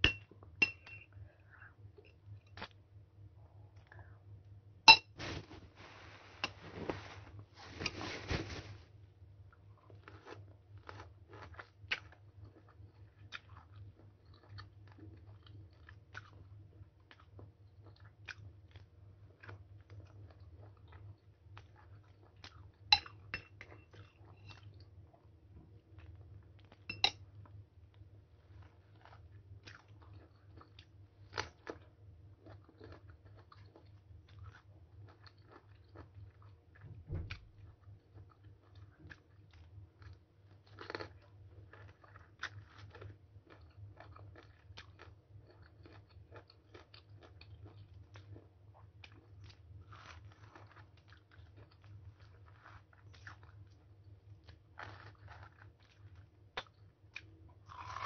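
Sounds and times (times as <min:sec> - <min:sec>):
faint low hum: 0:00.0 - 0:58.0
person biting and chewing fruit: 0:40.7 - 0:53.6, 0:54.4 - 0:58.0.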